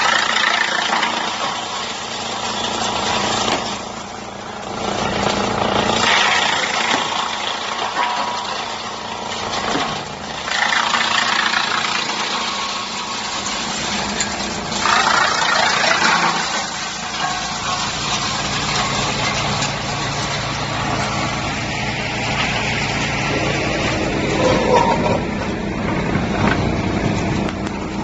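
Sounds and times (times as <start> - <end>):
wood chipper running: 0.0 - 28.0
wood being chipped: 4.6 - 17.5.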